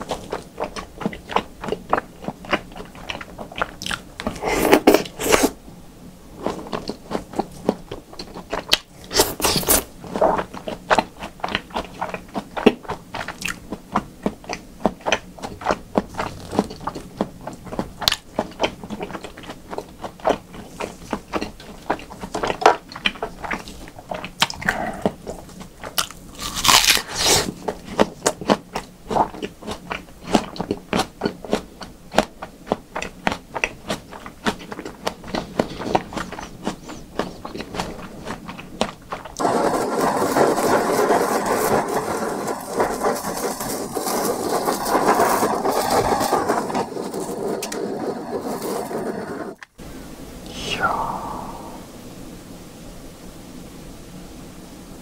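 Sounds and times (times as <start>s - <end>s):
wet chewing clicks and smacks: 0.0s - 4.4s, 6.4s - 27.0s, 27.6s - 39.4s
steady dense noise: 0.0s - 27.7s, 49.4s - 55.0s.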